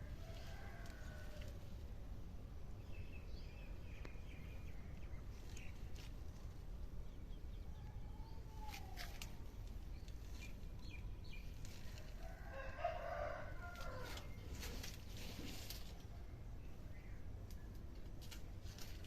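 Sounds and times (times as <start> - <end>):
rooster crowing: 0.0 - 1.6, 12.1 - 14.3
steady low rumble: 0.0 - 12.3.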